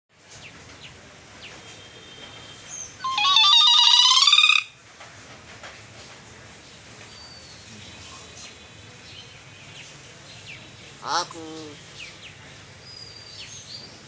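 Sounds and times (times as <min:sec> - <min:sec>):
bird whistled call: 0:03.0 - 0:04.7.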